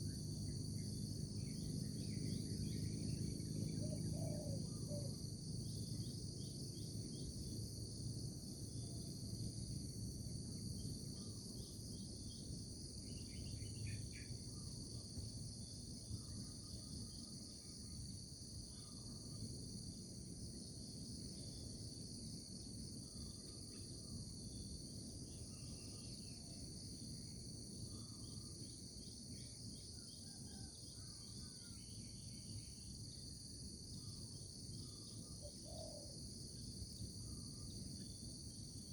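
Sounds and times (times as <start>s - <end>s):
insects chorus: 0.0s - 38.9s.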